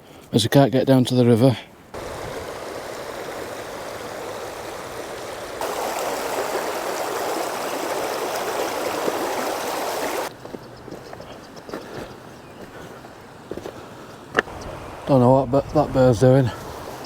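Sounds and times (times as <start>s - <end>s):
river running over stones: 2.0s - 10.6s.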